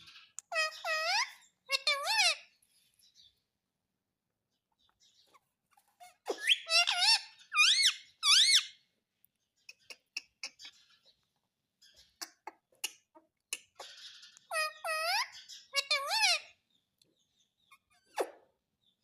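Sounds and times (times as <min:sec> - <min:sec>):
parakeet squeaky calls: 0:00.0 - 0:02.6, 0:05.0 - 0:08.9, 0:13.8 - 0:16.6.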